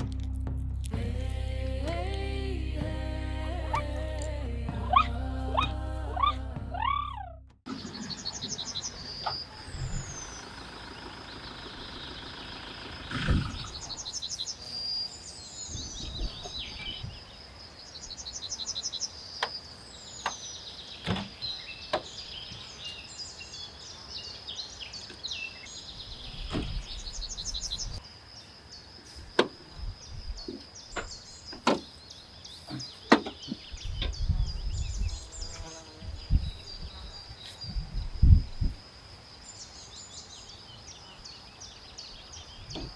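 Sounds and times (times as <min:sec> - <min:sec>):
low rumbles: 0:00.0 - 0:07.7
birds chirping and whistling: 0:04.9 - 0:17.3, 0:24.2 - 0:28.0, 0:29.9 - 0:38.7
high insect trill: 0:26.8 - 0:42.6.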